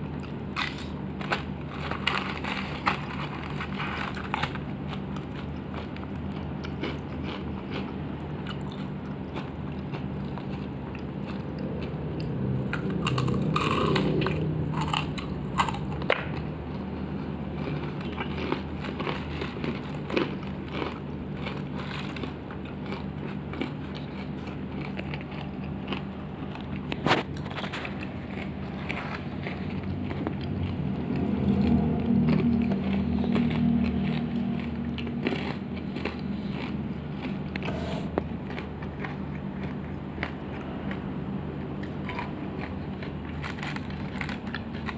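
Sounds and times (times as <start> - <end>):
chewing crispy fried chicken: 0.0 - 44.9
low hum: 7.5 - 44.9.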